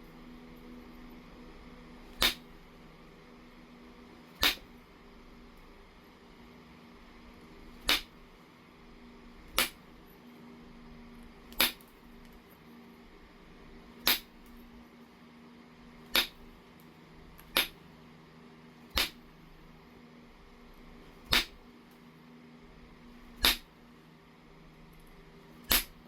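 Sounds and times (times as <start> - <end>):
stone knapping clicks: 2.1 - 2.5, 4.4 - 4.7, 7.8 - 8.1, 9.5 - 9.8, 11.5 - 12.4, 14.0 - 14.3, 16.1 - 16.4, 17.4 - 17.8, 18.9 - 19.2, 21.3 - 21.6, 23.4 - 23.7, 25.7 - 26.0.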